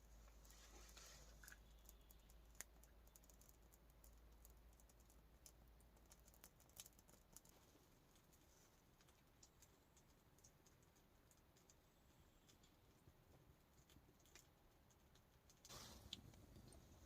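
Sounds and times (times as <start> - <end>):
faint sharp clicks and ticks: 0.0 - 17.0.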